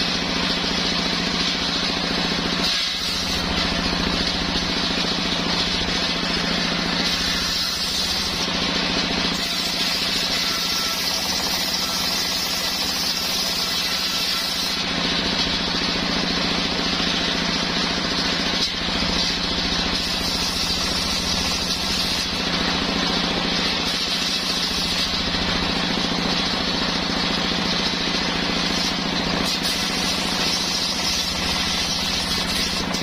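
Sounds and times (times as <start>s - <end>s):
engine-driven circular saw cutting wood: 0.0s - 33.0s.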